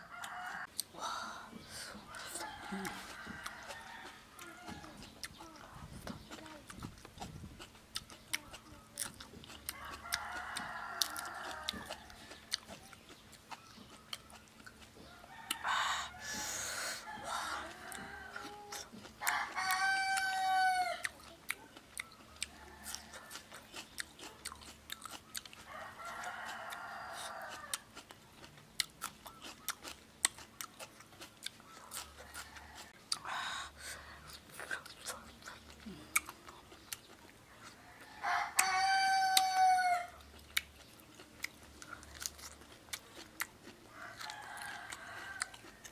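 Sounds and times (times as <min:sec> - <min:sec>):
rooster crowing: 0:00.0 - 0:00.7, 0:02.1 - 0:05.0, 0:09.7 - 0:12.7, 0:15.1 - 0:21.1, 0:25.5 - 0:27.9, 0:31.9 - 0:33.2, 0:37.6 - 0:40.2, 0:43.8 - 0:45.9
chickens clucking: 0:00.0 - 0:45.9
close-up chewing: 0:00.0 - 0:45.9.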